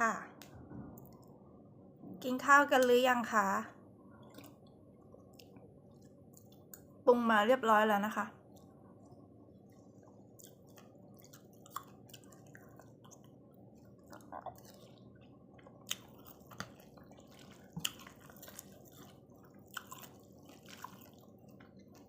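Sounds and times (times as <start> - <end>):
person chewing and slurping: 8.6 - 22.0.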